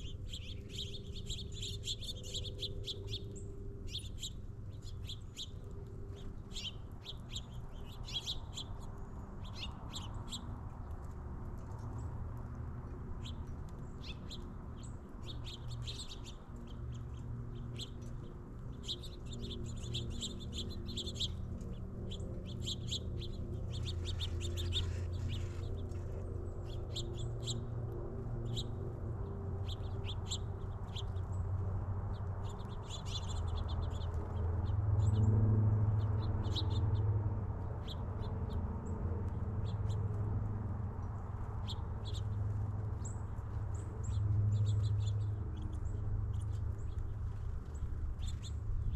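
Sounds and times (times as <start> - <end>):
small songbirds chirping: 0.0 - 48.9
steady low hum: 0.0 - 48.9.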